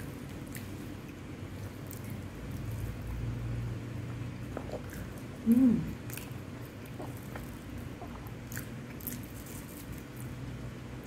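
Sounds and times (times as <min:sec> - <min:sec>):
person chewing with lip smacks: 0:04.5 - 0:10.0
person humming: 0:05.4 - 0:06.0.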